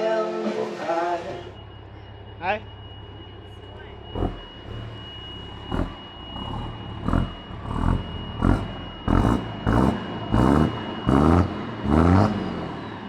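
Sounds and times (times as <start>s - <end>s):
truck engine revving over idle: 3.0s - 13.0s.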